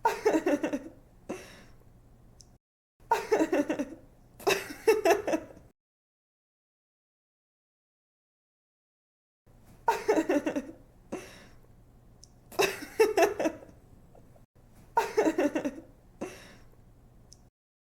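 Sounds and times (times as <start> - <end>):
young woman laughing: 0.0 - 1.0, 3.1 - 5.6, 9.9 - 10.8, 12.6 - 13.8, 15.0 - 15.9.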